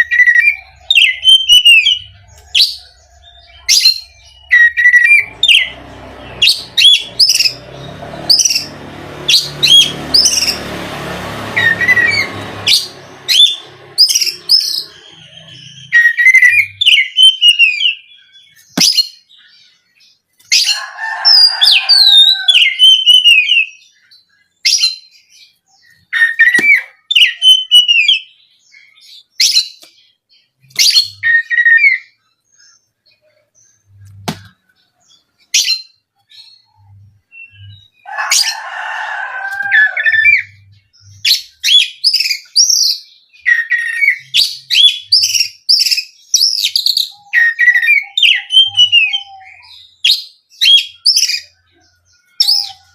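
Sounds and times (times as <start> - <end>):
bird singing whistled notes: 0.0 - 5.7, 11.6 - 19.8, 22.0 - 34.2, 40.1 - 52.9.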